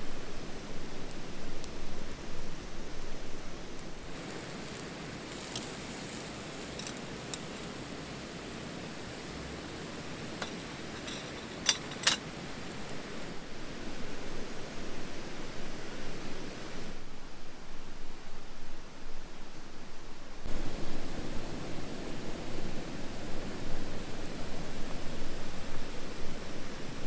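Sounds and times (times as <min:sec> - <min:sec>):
steady outdoor hiss: 0:00.0 - 0:27.0
sharp clicks and light clinks: 0:04.2 - 0:08.2, 0:10.2 - 0:13.0.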